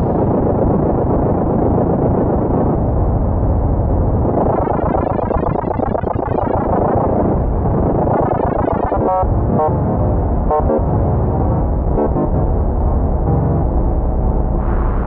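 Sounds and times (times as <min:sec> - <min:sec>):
synthesizer music: 0:04.4 - 0:07.1, 0:08.0 - 0:09.8, 0:11.9 - 0:12.5.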